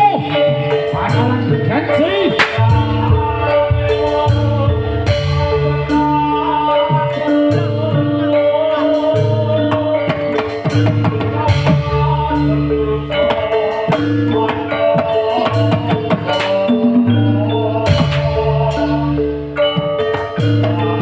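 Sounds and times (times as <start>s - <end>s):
bass line: 0.0s - 10.0s, 10.7s - 14.6s
sustained melodic notes: 0.0s - 21.0s
drum hits: 1.0s - 6.3s.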